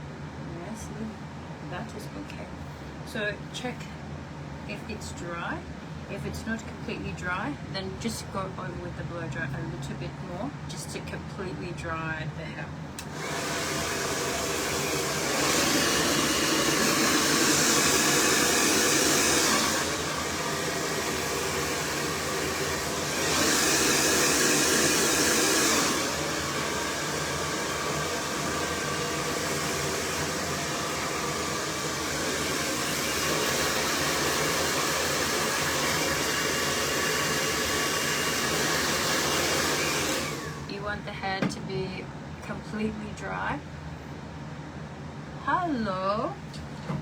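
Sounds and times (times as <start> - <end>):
hair dryer blowing air: 13.0 - 40.8.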